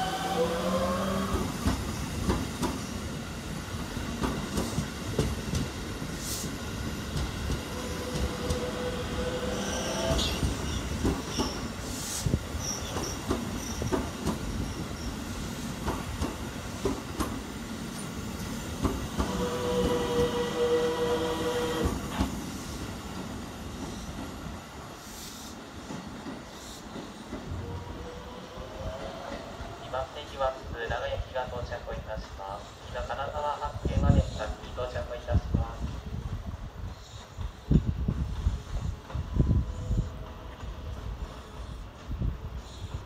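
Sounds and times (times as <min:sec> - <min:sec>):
train wheels clattering over rail joints: 0:01.6 - 0:02.9, 0:04.1 - 0:05.8, 0:12.8 - 0:14.8, 0:15.7 - 0:20.4.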